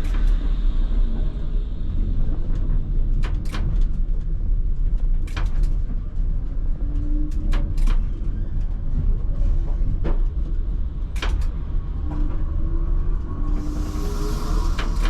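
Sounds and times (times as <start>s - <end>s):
tram rumbling along track: 0.0s - 15.0s
faint rising whine: 11.8s - 15.0s
hiss: 13.5s - 15.0s.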